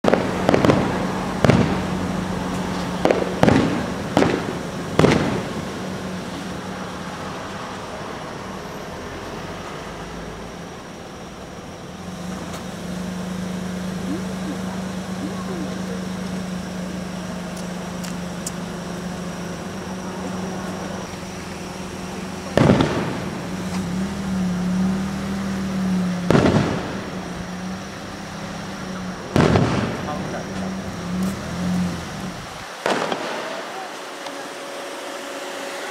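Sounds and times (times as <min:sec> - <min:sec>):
firework shells bursting: 0:00.0 - 0:07.6, 0:11.2 - 0:35.6
steady low hum: 0:09.7 - 0:32.8.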